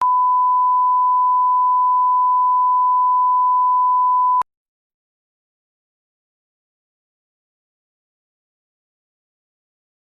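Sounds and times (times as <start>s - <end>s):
steady reference tone beep: 0.0s - 4.4s.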